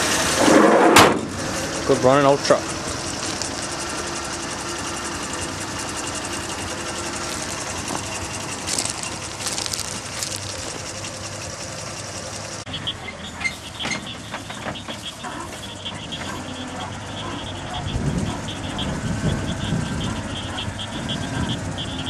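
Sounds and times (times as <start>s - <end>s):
engine running steadily: 0.0s - 22.0s
faint belt whine: 0.6s - 22.0s
scattered clicks: 3.1s - 3.8s.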